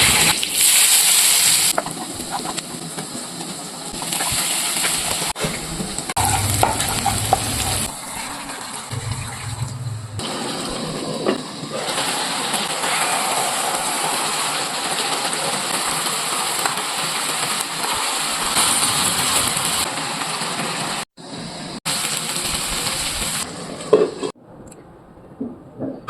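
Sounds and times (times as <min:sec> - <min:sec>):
food sizzling in a pan: 0:00.0 - 0:05.4, 0:06.1 - 0:09.6, 0:11.6 - 0:23.7
spoon scraping a pan: 0:06.2 - 0:07.9.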